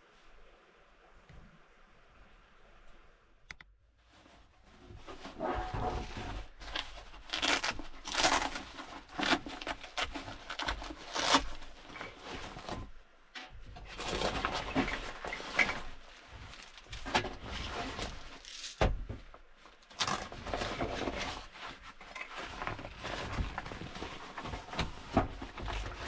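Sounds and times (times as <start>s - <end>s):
rustling and scraping: 4.0s - 26.0s.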